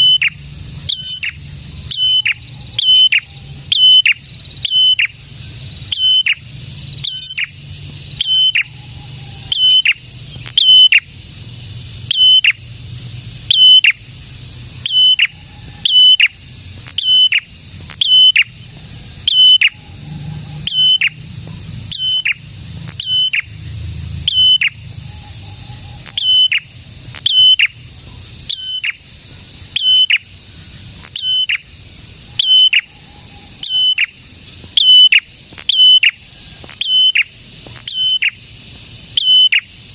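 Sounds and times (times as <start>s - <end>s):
songbird singing sharp high notes: 0.0s - 12.7s, 13.4s - 14.2s, 14.8s - 18.6s, 19.3s - 19.9s, 20.6s - 21.2s, 21.9s - 23.6s, 24.2s - 27.8s, 28.4s - 29.0s, 29.6s - 30.4s, 31.0s - 31.7s, 32.3s - 38.5s, 39.1s - 39.8s.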